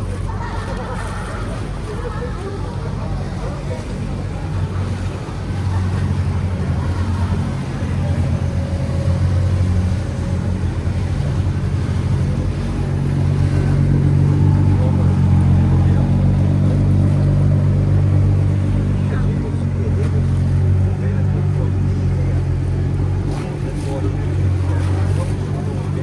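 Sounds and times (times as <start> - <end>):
boat diesel engine running: 0.0 - 26.0.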